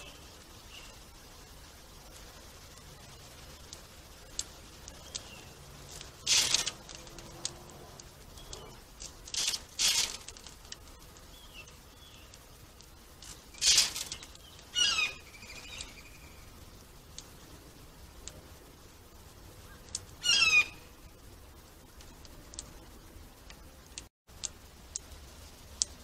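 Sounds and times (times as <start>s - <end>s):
faint bird chirps: 0.0s - 1.6s, 4.9s - 5.7s, 8.3s - 8.8s, 13.5s - 16.7s, 19.6s - 21.1s
birds rustling at feeder: 0.0s - 26.0s.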